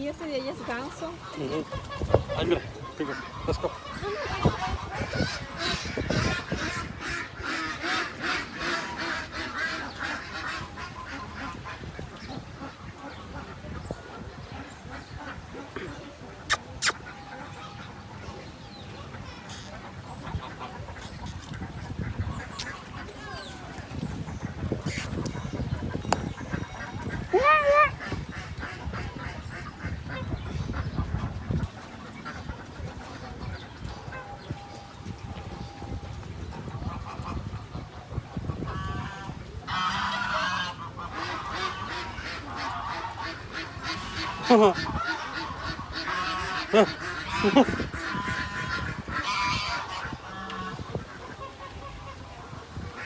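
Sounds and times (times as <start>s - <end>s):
geese honking: 0.0s - 15.8s, 38.5s - 53.0s
ducks quacking: 0.0s - 53.0s.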